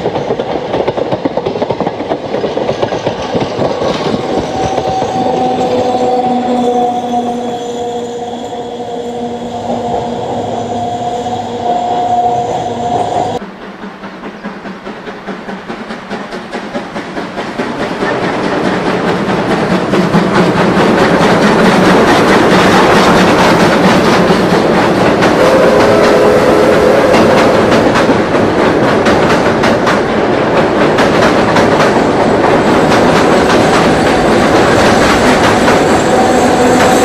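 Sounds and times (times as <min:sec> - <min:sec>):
wheels clacking over rail joints: 0:00.0 - 0:06.4, 0:13.0 - 0:37.0
train rumbling over bridge: 0:00.0 - 0:37.0
wheel squeal: 0:04.2 - 0:13.4.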